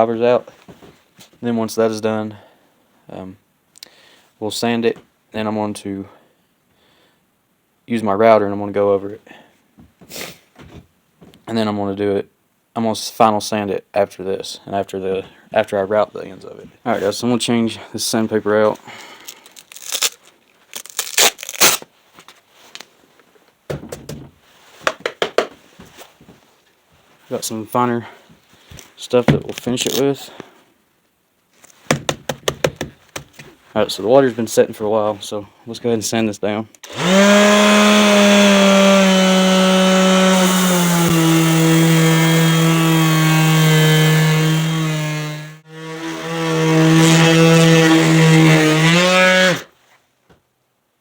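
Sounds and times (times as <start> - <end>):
sandpaper tearing and rustling: 19.3 - 21.9
electric sander running: 36.9 - 49.5.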